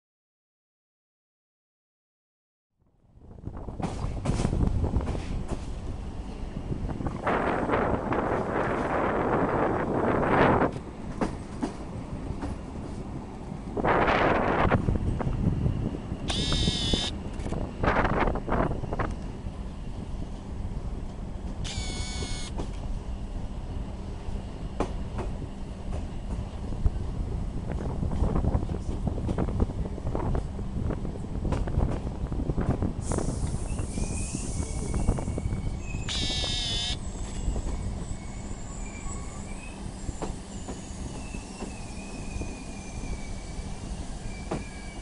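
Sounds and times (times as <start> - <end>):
train rumble: 3.1 - 45.0
wheels squealing on rails: 33.0 - 45.0
high-pitched squeal: 33.7 - 37.0.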